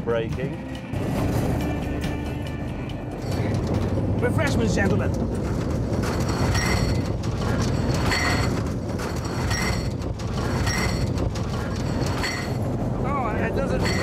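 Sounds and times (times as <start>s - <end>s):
caravan rumbling on railway track: 0.0s - 14.0s
rattling clank: 3.1s - 12.7s, 13.6s - 14.0s.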